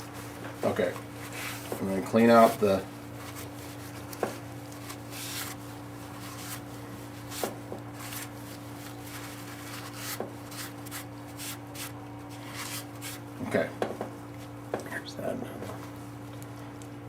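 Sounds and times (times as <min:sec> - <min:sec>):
rag rubbing strokes: 0:00.0 - 0:13.2
steady low hum: 0:00.0 - 0:17.0.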